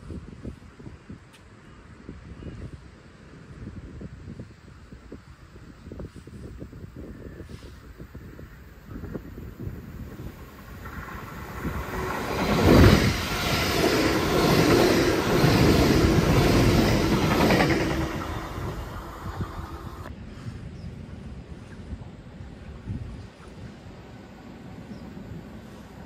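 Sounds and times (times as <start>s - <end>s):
train passing at speed: 9.6s - 21.5s, 23.7s - 26.0s.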